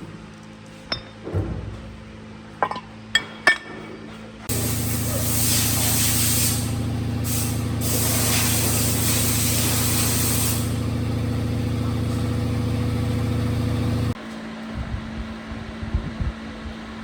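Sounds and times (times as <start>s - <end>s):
steady machine hum: 0.9s - 17.0s
compressed air hissing: 4.5s - 14.2s.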